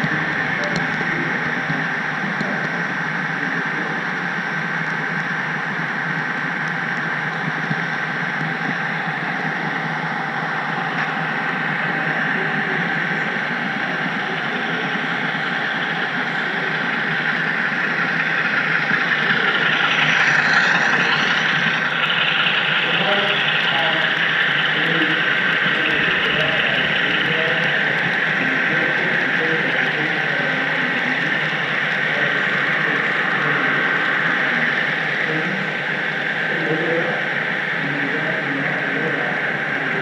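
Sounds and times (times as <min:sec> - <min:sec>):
model train running: 0:00.0 - 0:40.0
thin steady whine: 0:00.0 - 0:40.0.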